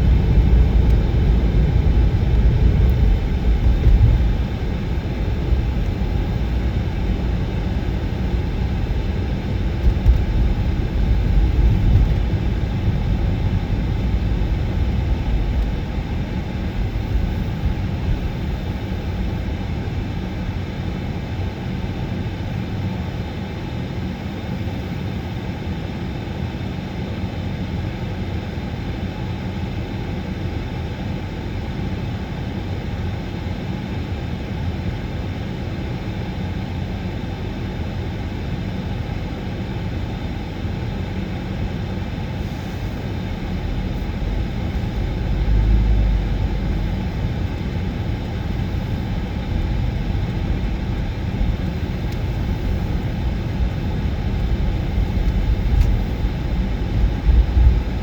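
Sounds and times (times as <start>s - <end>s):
moving vehicle rumble: 0.0s - 20.7s, 40.9s - 58.0s.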